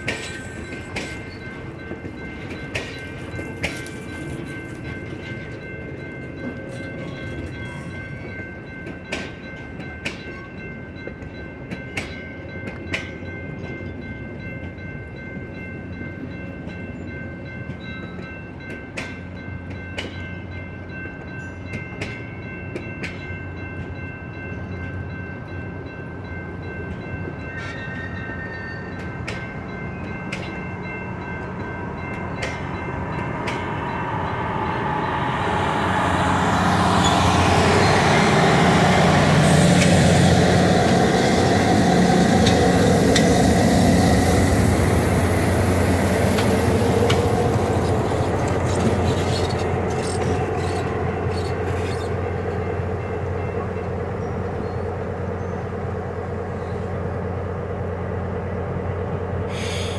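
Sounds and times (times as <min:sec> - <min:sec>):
diesel locomotive engine: 0:00.0 - 0:59.9
steady high tone: 0:29.7 - 0:54.1
wheels clicking over rail joints: 0:45.0 - 0:52.2.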